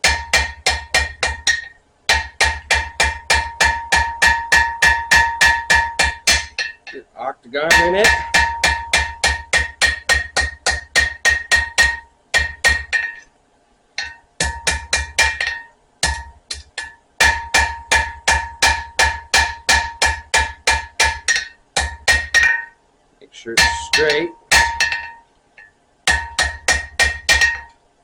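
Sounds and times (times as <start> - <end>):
hammer striking steel on anvil: 0.0 - 7.0, 7.7 - 13.3, 14.0 - 22.8, 23.6 - 27.8
anvil ringing: 7.7 - 9.7, 14.0 - 22.8, 23.6 - 27.8.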